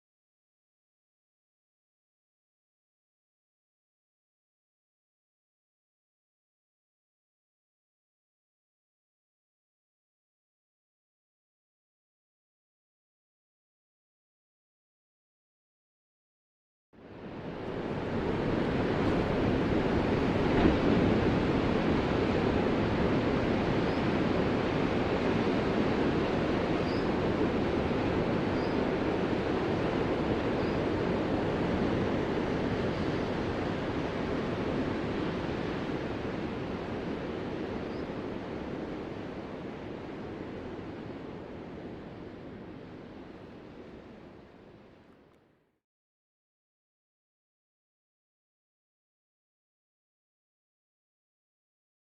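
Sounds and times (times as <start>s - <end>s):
ocean waves breaking: 17.2s - 44.3s.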